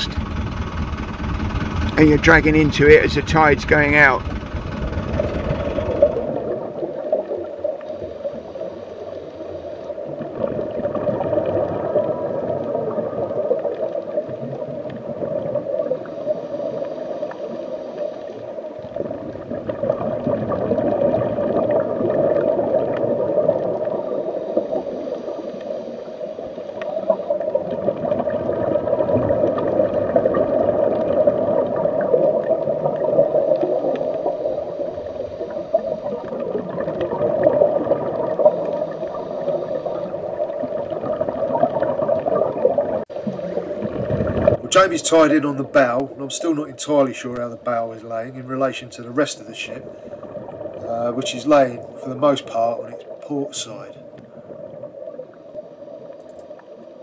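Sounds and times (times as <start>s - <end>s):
faint regulator hiss: 0.0s - 6.4s, 38.4s - 40.6s
diver breathing underwater bubbling: 0.0s - 46.4s, 49.5s - 57.0s.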